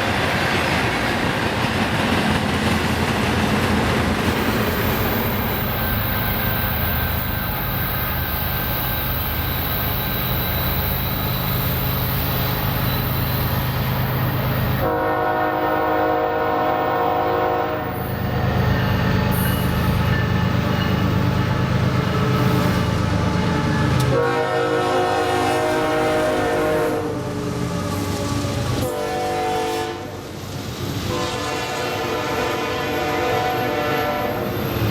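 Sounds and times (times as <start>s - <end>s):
diesel locomotive rumbling: 0.0s - 34.9s
locomotive air horn blasts: 14.8s - 18.0s, 23.3s - 28.2s, 28.8s - 30.2s, 31.1s - 34.5s.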